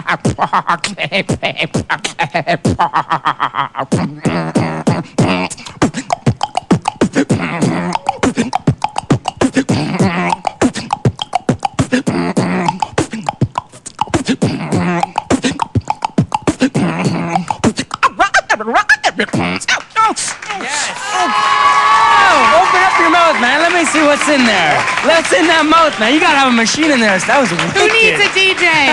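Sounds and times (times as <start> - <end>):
beatboxing beat: 0.0 - 20.4.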